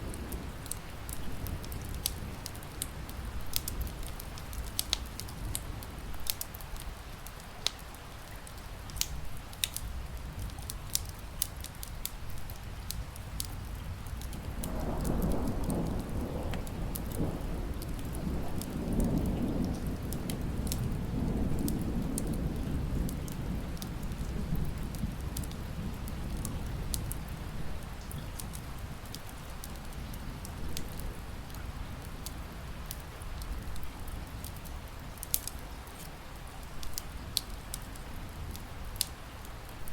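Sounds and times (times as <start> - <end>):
low rumble of thunder: 0.0 - 6.4, 12.4 - 35.4
steady rain: 0.0 - 39.9
wood fire crackling and popping: 0.0 - 39.9.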